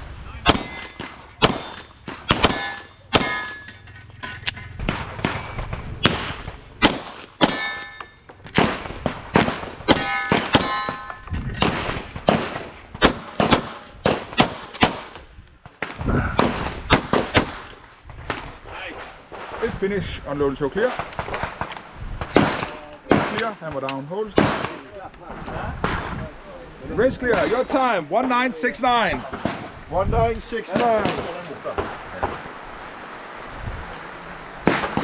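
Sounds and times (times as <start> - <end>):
steel targets clanging: 0.4 - 6.3, 6.9 - 8.6, 9.9 - 11.4
pistol firing rapidly: 1.4 - 3.4, 6.0 - 7.6, 12.3 - 15.1.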